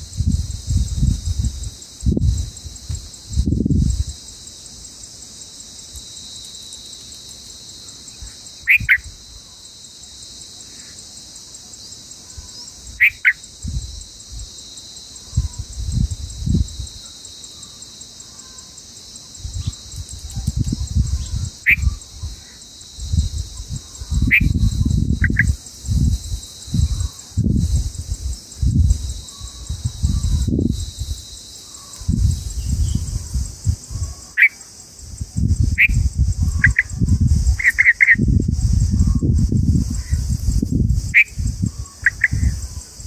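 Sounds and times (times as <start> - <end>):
high insect drone: 0.0 - 43.0
sharp bird chirps: 8.2 - 9.2, 12.4 - 13.4, 21.0 - 22.5, 23.6 - 25.6, 37.6 - 38.3, 41.1 - 42.5.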